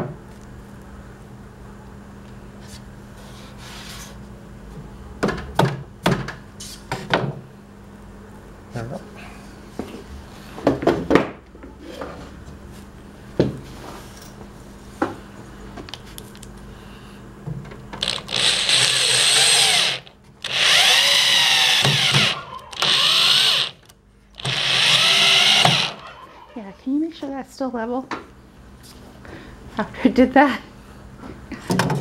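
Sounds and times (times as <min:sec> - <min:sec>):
power drill driving screws: 0:18.0 - 0:26.3.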